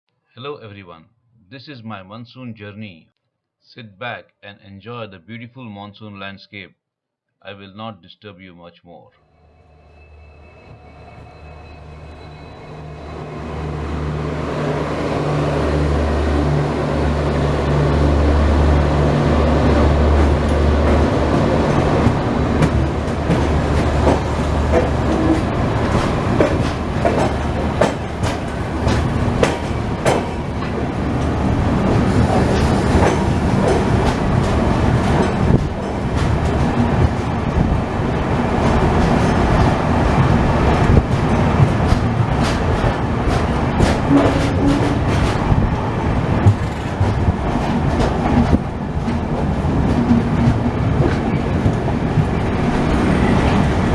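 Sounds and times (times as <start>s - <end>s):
train interior drone: 9.2s - 53.9s
wheels clattering over rails: 14.1s - 53.9s.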